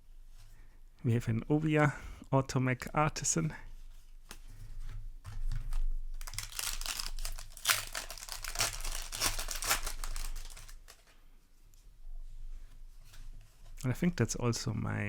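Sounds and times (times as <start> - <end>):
plastic wrapper crinkling: 5.7 - 11.2.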